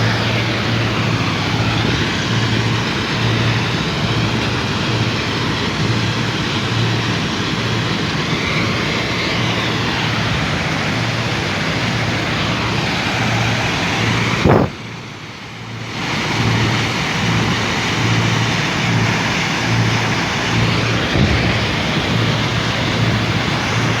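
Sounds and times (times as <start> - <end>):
pulsing low hum: 14.4 - 14.8
sharp bang: 14.4 - 14.8.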